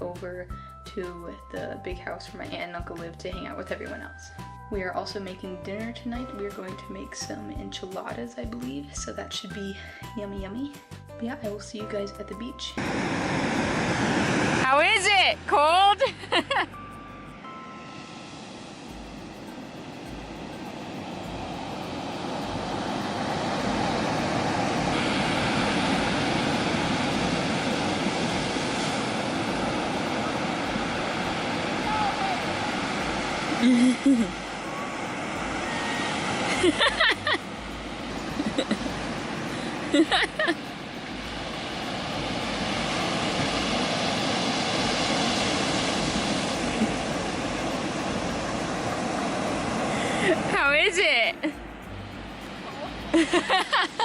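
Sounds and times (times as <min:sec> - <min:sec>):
ocean surf breaking: 0:12.8 - 0:54.0
steady rushing noise: 0:12.8 - 0:54.0
wind buffeting the microphone: 0:20.1 - 0:33.6.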